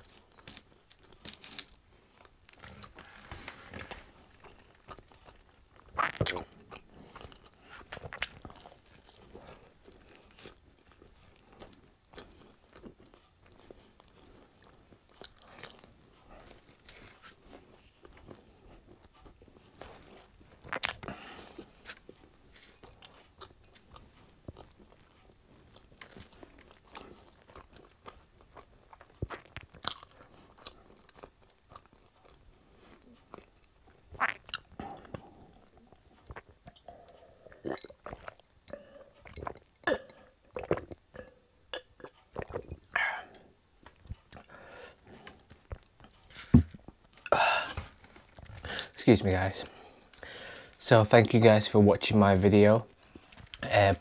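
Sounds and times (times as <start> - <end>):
chewing crunchy pizza crust: 0.0 - 51.8, 52.8 - 54.0.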